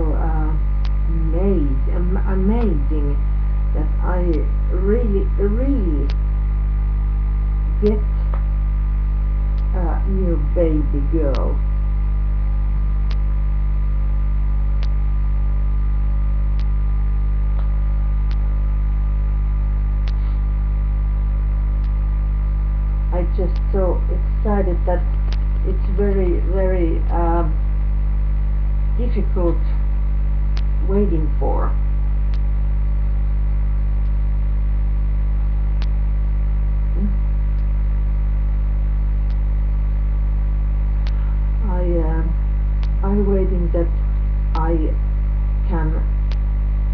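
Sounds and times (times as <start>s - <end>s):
electrical mains hum: 0.0s - 46.9s
faint clicks: 13.0s - 13.3s, 14.8s - 15.0s, 23.4s - 23.8s, 25.1s - 25.7s, 32.3s - 32.5s, 35.8s - 36.0s, 39.2s - 39.5s, 41.0s - 41.4s, 42.8s - 43.0s.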